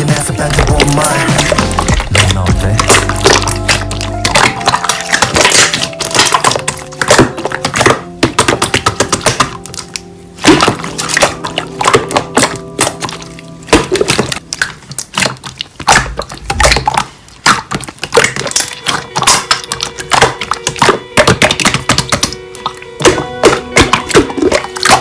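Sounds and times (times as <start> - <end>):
pop song: 0.0 - 3.3
slime clicking and popping: 0.4 - 25.0.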